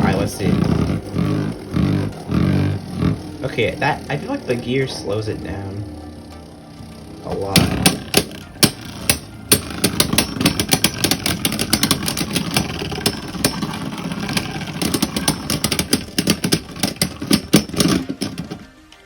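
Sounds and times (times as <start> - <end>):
spinning tops whirring: 0.0 - 19.0
sharp clicks of tops hitting: 7.3 - 19.0.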